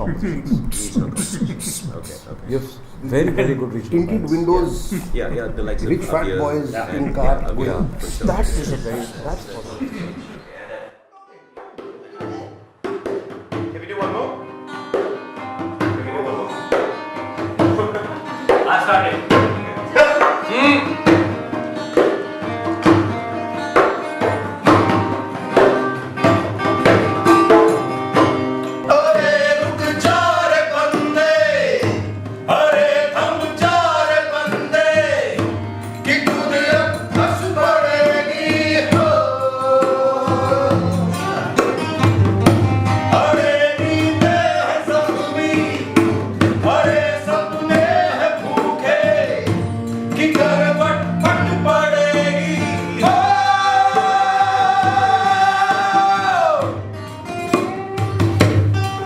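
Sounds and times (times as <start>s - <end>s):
band playing a song: 0.0s - 10.5s
rhythmic drumming: 0.0s - 10.6s, 14.9s - 23.2s, 23.8s - 59.0s
person singing: 0.0s - 11.5s, 28.9s - 42.0s, 43.0s - 56.8s.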